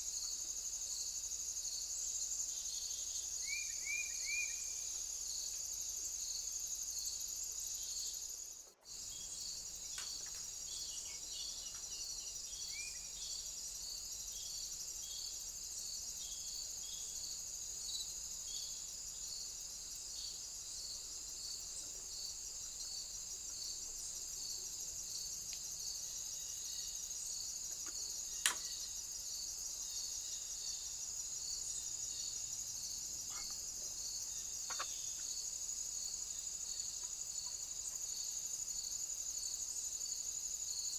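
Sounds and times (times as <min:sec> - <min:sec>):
insects trilling: 0:00.0 - 0:40.9
pulsing insect chirp: 0:00.0 - 0:40.9
sharp click: 0:28.4 - 0:28.7.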